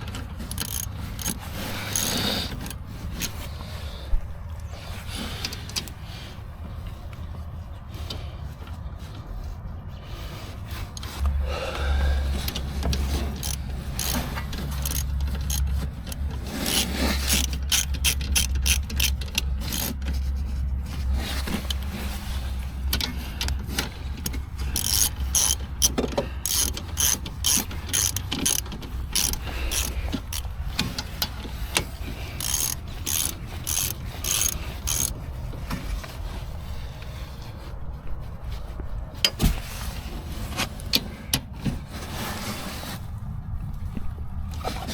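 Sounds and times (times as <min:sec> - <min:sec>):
low steady hum: 0:00.0 - 0:44.9
ratchet wrench clicking: 0:00.4 - 0:03.3, 0:12.5 - 0:20.1, 0:23.0 - 0:35.2.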